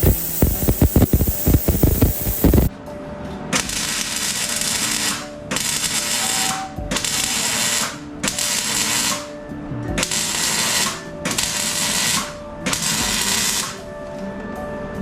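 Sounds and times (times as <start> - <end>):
harsh hissing bursts: 0.0 - 2.7.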